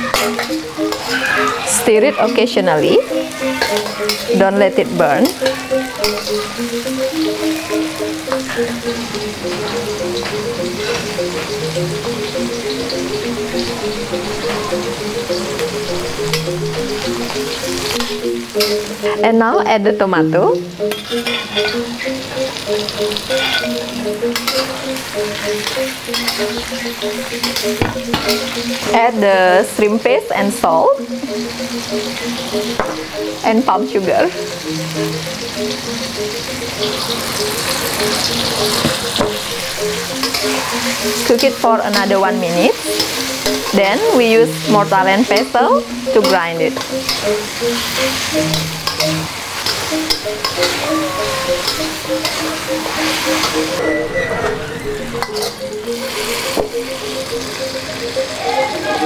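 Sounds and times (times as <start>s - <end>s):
metal spatula scraping wok: 0.0s - 7.4s, 20.6s - 29.0s, 36.8s - 50.8s
food sizzling in hot oil: 0.0s - 53.9s, 55.1s - 59.0s
soft background melody: 0.0s - 59.0s
metal spatula scraping a wok: 20.8s - 22.0s, 23.3s - 24.8s.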